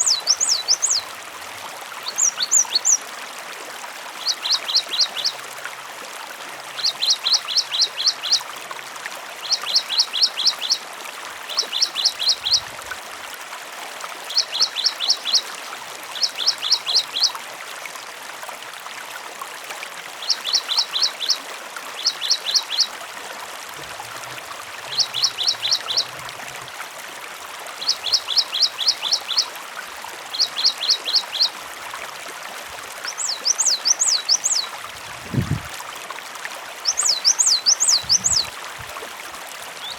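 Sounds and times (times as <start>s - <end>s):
bird singing: 0.0s - 1.0s, 2.1s - 3.0s, 24.9s - 26.1s, 33.1s - 34.7s, 36.9s - 38.5s
running water: 0.0s - 39.9s
wavering bird call: 24.9s - 26.1s.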